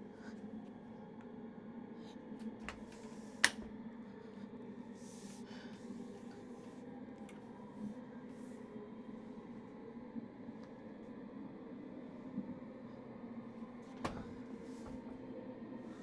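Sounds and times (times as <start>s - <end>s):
low steady hum: 0.0s - 16.0s
soft breaths: 1.9s - 9.9s, 12.9s - 16.0s.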